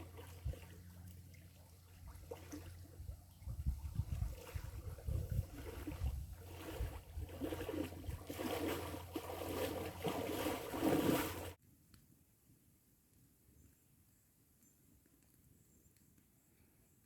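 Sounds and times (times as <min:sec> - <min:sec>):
water splashing around canoe: 0:00.0 - 0:11.6
wind on microphone: 0:03.0 - 0:08.3.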